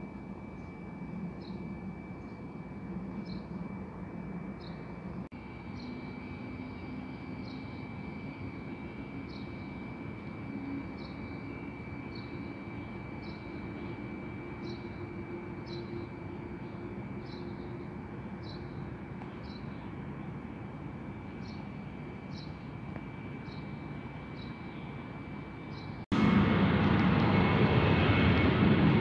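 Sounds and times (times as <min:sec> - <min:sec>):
distant jet engines droning: 0:00.0 - 0:29.0
small bird chirping: 0:18.4 - 0:19.9.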